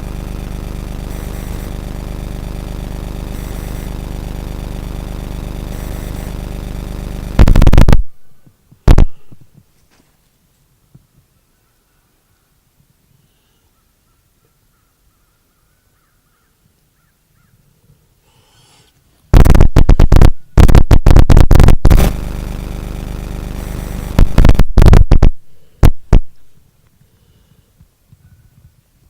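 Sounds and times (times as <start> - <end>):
harsh distorted buzzing: 0.0 - 9.6, 19.3 - 26.6.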